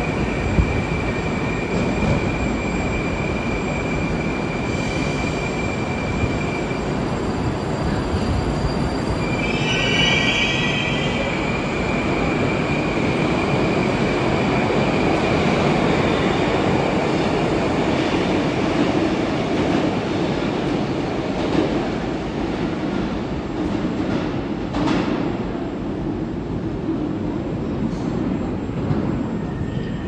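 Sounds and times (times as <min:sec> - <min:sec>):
train wheel squeal: 0:00.5 - 0:16.6, 0:29.4 - 0:30.0.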